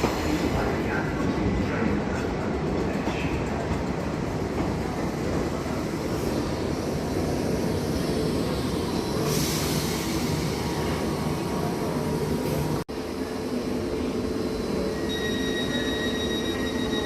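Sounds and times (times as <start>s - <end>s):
train hiss: 0.0s - 1.2s, 5.9s - 12.7s
train wheels rumbling on rail: 0.0s - 12.8s.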